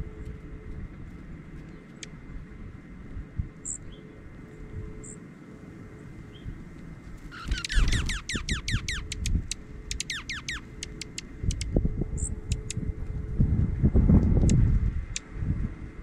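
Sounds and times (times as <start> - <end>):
bird trilling: 7.3 - 12.8
bird chip notes: 7.3 - 13.0
low rumble: 10.6 - 16.0.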